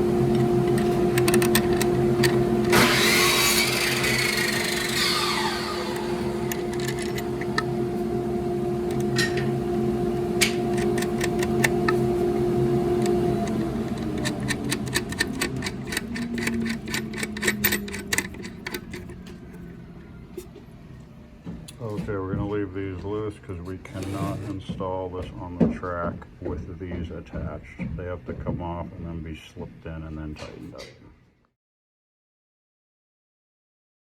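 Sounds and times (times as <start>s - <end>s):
power tool motor humming: 0.0s - 19.5s, 23.8s - 24.7s
rapid clicking: 10.4s - 12.2s, 12.9s - 19.4s.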